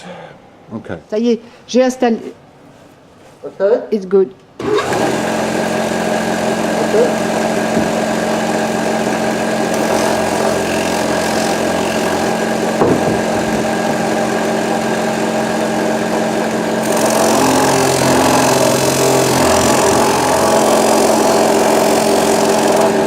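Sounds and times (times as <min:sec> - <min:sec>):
polishing machine motor hum: 0:04.8 - 0:23.0.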